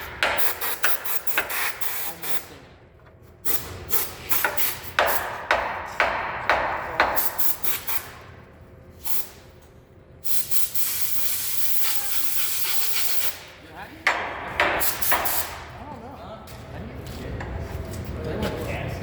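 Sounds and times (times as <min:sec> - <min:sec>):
sharp knocks: 0:04.5 - 0:07.4, 0:14.0 - 0:15.6
spraying hiss: 0:10.2 - 0:13.5.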